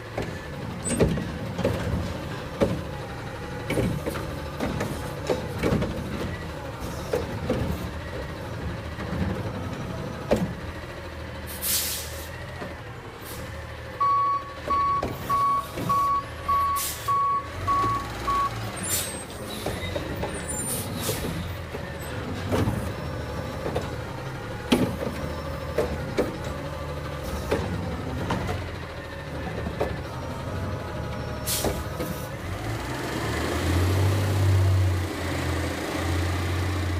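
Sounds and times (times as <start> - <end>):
diesel engine running: 0.0 - 36.9
air brakes hissing: 11.4 - 12.4, 13.2 - 13.6, 16.6 - 17.2, 18.7 - 21.5, 31.3 - 32.4
reversing beeper: 14.0 - 18.7.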